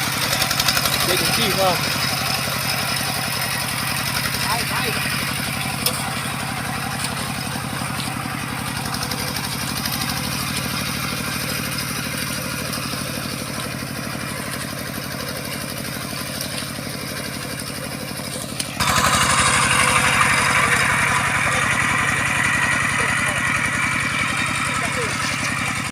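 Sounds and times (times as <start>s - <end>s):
bulldozer diesel engine running: 0.0s - 25.9s.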